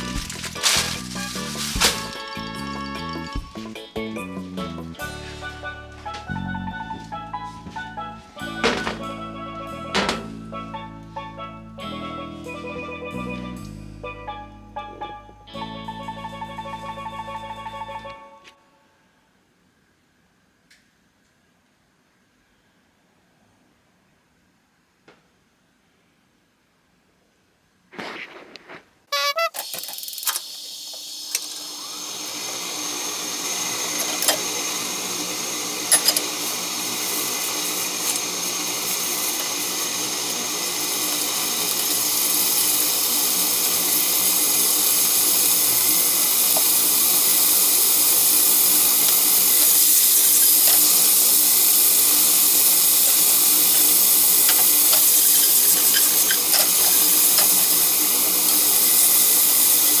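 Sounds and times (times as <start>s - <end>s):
food sizzling in a frying pan: 0.0s - 3.4s, 29.8s - 60.0s.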